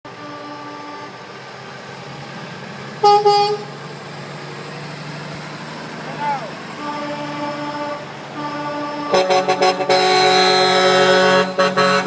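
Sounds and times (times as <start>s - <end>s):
vehicle horn honking: 0.1s - 1.1s, 3.0s - 3.7s, 6.8s - 12.0s
low engine rumble: 0.1s - 12.0s.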